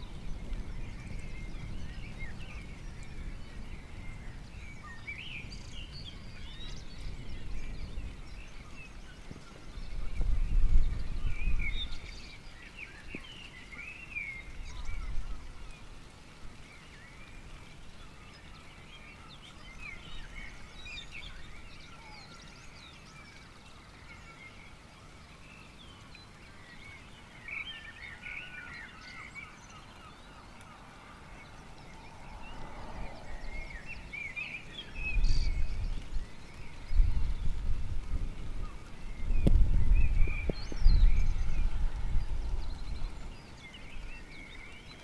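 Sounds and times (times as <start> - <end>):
birds chirping: 18.0 - 45.0.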